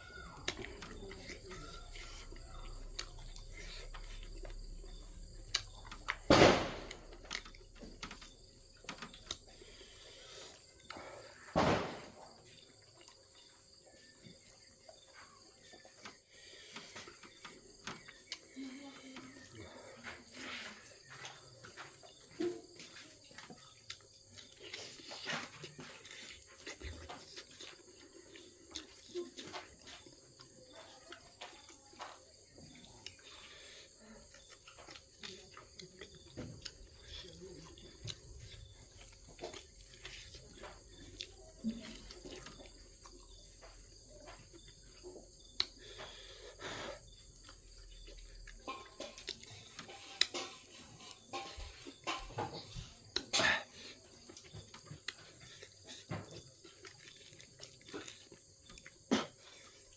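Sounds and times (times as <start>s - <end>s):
crickets chirring: 0.0s - 59.9s
chewing clicks and smacks: 0.2s - 6.3s, 12.5s - 18.6s, 22.8s - 46.3s, 47.0s - 52.4s, 53.1s - 53.4s, 54.0s - 59.9s.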